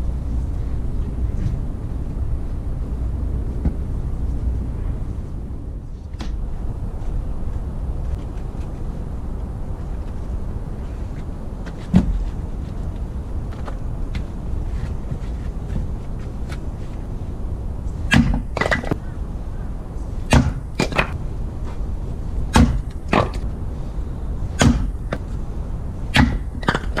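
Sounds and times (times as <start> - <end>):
axe splitting firewood: 18.1 - 19.0, 20.3 - 21.2, 22.5 - 23.4, 24.6 - 25.2, 26.1 - 27.0.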